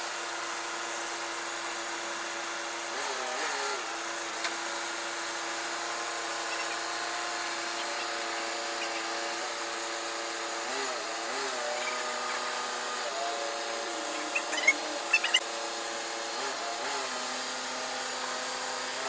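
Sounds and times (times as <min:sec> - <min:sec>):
loader engine whining: 0:05.9 - 0:15.4.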